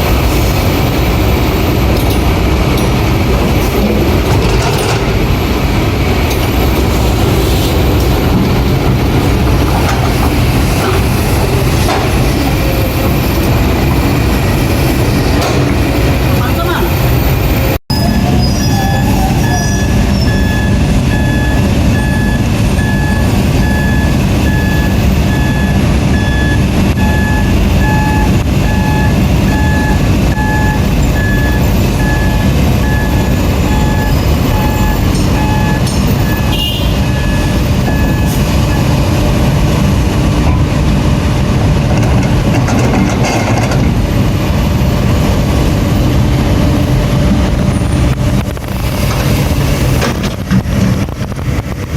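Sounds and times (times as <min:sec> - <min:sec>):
heavy diesel engines running: 0:00.0 - 0:51.9
backup alarm beeping: 0:17.6 - 0:39.0.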